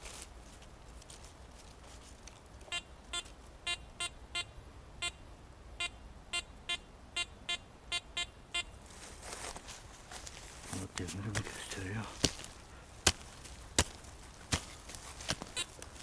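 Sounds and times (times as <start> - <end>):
metal detector beeps: 2.7 - 5.2, 5.8 - 8.8, 15.5 - 15.8
person speaking: 10.6 - 12.4.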